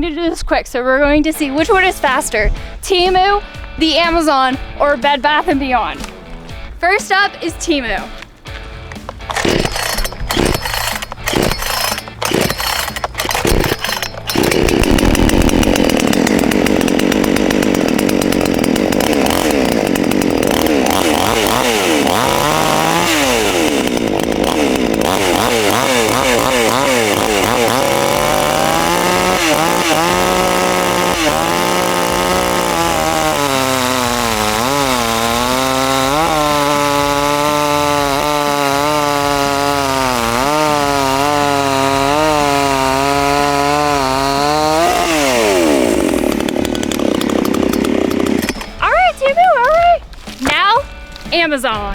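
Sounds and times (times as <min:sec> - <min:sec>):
chainsaw engine running: 0:05.4 - 0:49.6
chainsaw starter knocks: 0:08.1 - 0:48.8.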